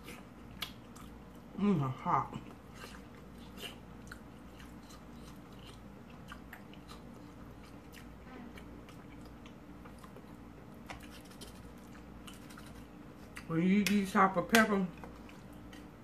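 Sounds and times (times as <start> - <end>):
mouth clicks and smacks: 0.5 - 1.2.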